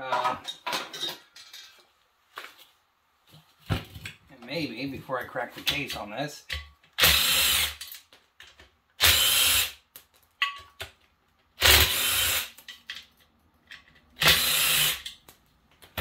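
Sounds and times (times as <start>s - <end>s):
cordless drill running: 7.0s - 7.8s, 9.0s - 9.8s, 11.6s - 12.5s, 14.2s - 15.0s.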